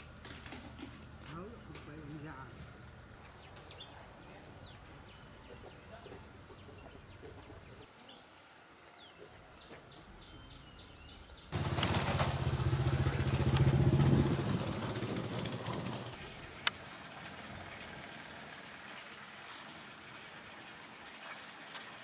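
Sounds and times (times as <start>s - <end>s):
small engine running: 11.5s - 18.7s.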